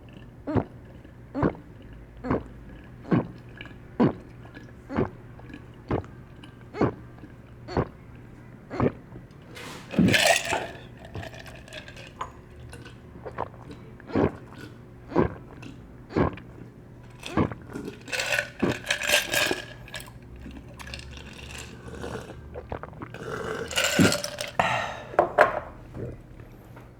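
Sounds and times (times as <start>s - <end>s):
person gulping a drink: 0.0s - 8.0s, 8.7s - 26.3s
ice clinking against glass: 9.6s - 13.0s, 17.1s - 22.3s, 23.2s - 25.6s
burp: 21.6s - 25.3s.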